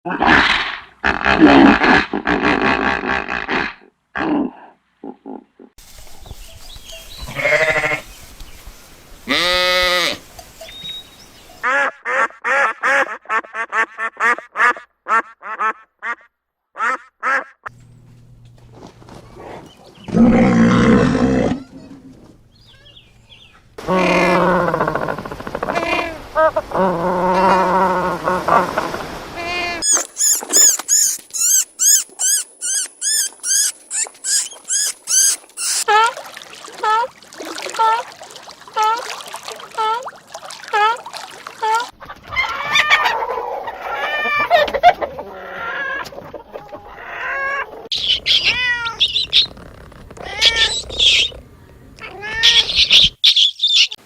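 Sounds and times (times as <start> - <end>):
animal calling: 23.8 - 28.8, 29.4 - 36.1, 41.6 - 51.4, 52.0 - 54.0
high-pitched squeaks: 29.8 - 35.9.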